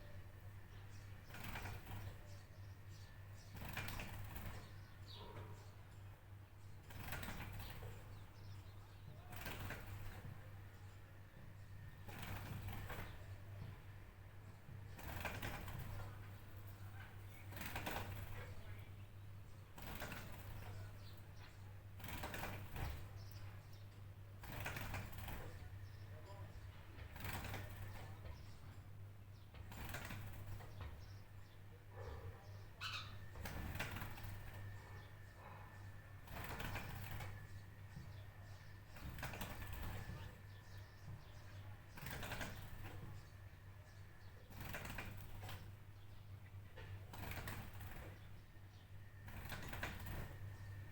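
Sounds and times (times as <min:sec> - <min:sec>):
faint bird chirps: 0:00.0 - 0:13.5, 0:29.4 - 0:46.5.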